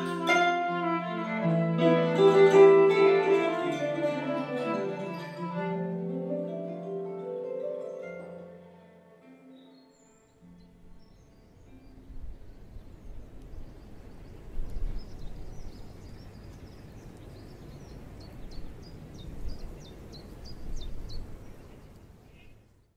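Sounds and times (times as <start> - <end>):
small birds chirping: 9.4 - 22.9
low uneven rumble: 10.8 - 22.6.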